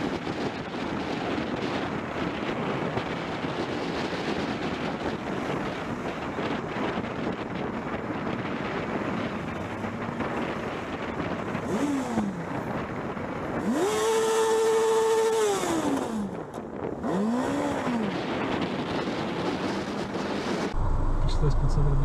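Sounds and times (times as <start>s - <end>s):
road noise: 0.0s - 22.0s
engine revving: 11.6s - 12.4s, 13.6s - 16.4s, 17.0s - 18.6s, 20.6s - 22.0s.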